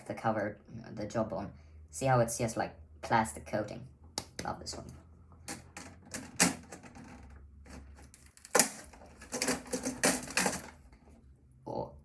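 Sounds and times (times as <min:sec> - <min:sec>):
computer parts clicking and clacking: 0:05.5 - 0:11.0.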